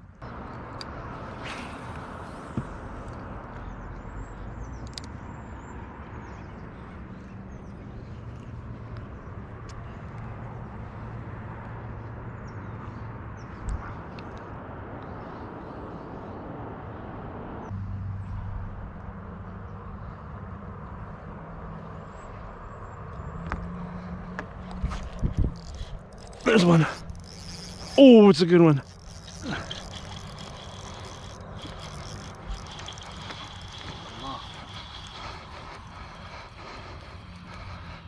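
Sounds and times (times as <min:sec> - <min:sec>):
boat motor humming: 0:23.6 - 0:38.0.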